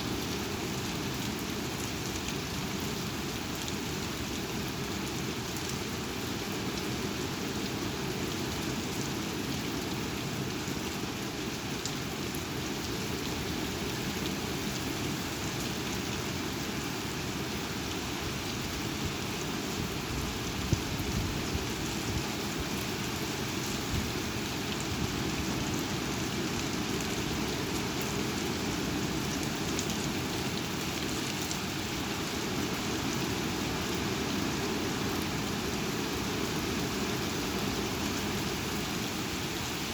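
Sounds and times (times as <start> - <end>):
heavy rain: 0.0 - 39.9
strong wind: 19.7 - 26.1.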